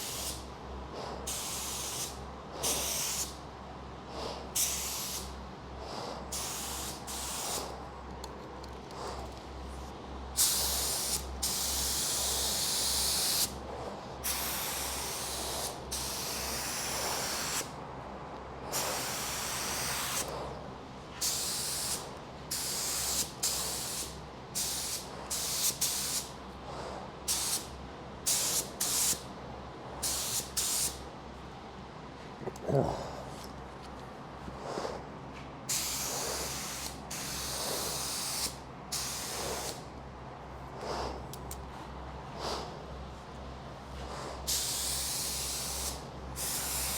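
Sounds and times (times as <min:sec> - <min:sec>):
spray gun hissing: 0:10.4 - 0:13.5, 0:35.7 - 0:39.8, 0:44.5 - 0:46.9.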